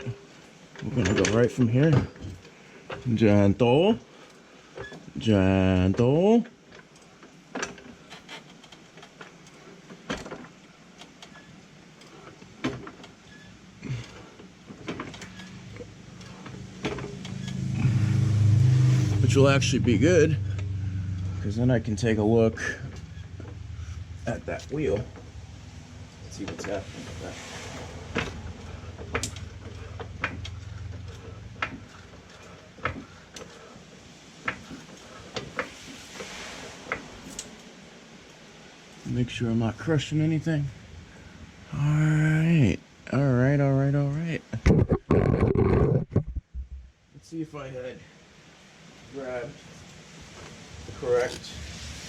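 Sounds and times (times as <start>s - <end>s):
low hum: 15.2s - 33.9s, 44.7s - 47.0s.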